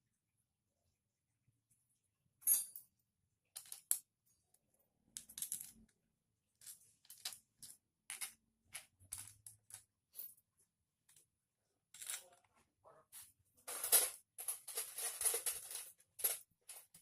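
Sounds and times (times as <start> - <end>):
metal parts and tools clinking: 6.6 - 10.4, 13.6 - 17.0.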